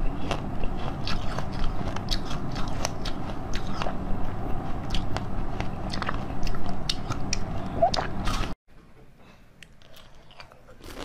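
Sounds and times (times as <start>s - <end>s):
chewing jelly candy: 0.0s - 8.6s, 9.6s - 11.0s.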